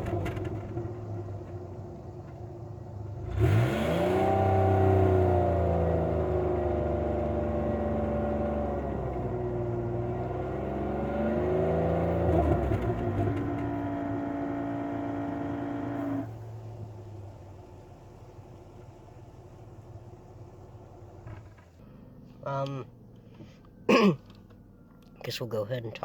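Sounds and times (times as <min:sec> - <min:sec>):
car engine revving: 0:00.0 - 0:16.5.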